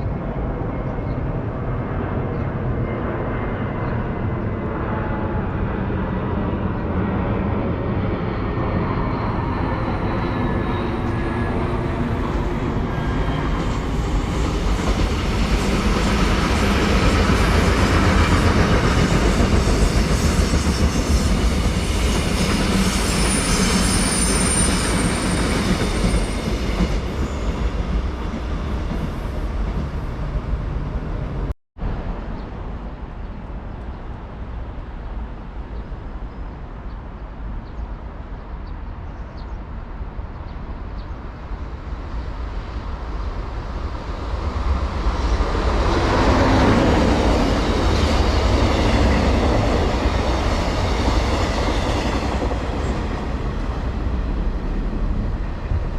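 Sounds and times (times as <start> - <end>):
train wheel and rail noise: 0.0 - 55.9
steady rail rumble: 4.4 - 35.8, 40.0 - 55.9
high squeal: 8.7 - 28.2.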